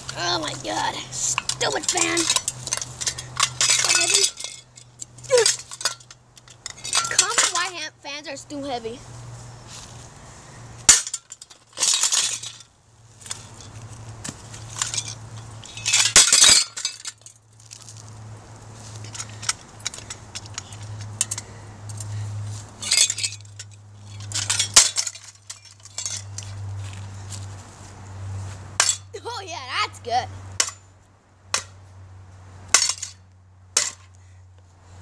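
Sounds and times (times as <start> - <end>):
metal and glass smashing: 1.4 - 7.7, 10.9 - 12.7, 14.8 - 17.3, 22.8 - 26.3.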